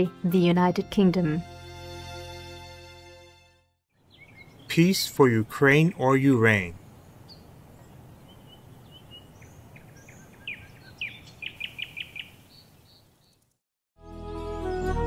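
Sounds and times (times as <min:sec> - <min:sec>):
small birds chirping: 0:03.9 - 0:13.6
soft outdoor hiss: 0:04.0 - 0:13.6.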